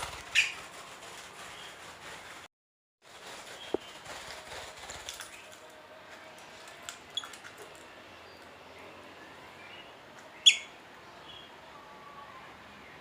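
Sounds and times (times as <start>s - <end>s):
lovebird chirping: 10.4s - 10.8s.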